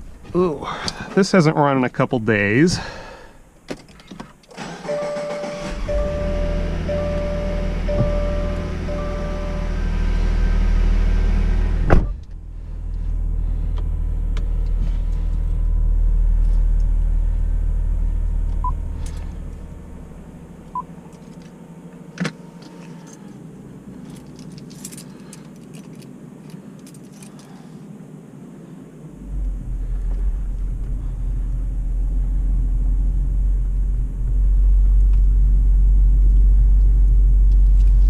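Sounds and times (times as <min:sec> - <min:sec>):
car engine idling: 0:04.6 - 0:27.5, 0:28.1 - 0:38.0
car chime beeping: 0:04.7 - 0:10.0.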